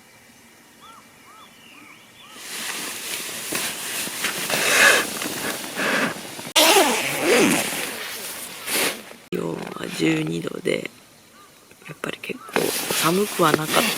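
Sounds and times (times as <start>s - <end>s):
bird calling faintly: 0.7s - 13.9s
close rustling and handling: 2.4s - 10.6s, 12.5s - 13.9s.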